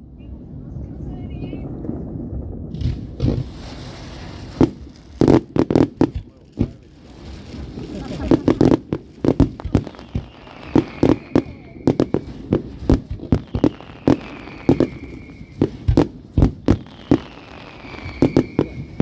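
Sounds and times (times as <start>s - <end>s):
fireworks bangs: 0.2s - 19.0s
faint falling whistle: 13.6s - 15.7s, 17.3s - 18.8s.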